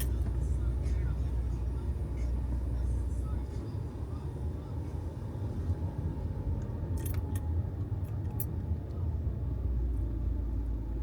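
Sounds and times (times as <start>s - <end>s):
road and engine rumble in car: 0.0s - 11.0s
light clicks or rattles: 6.6s - 8.6s.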